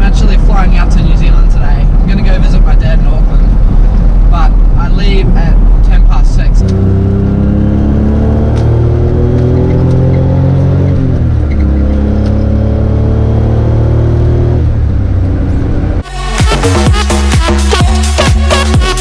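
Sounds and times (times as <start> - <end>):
car engine accelerating through gears: 3.2 - 16.0.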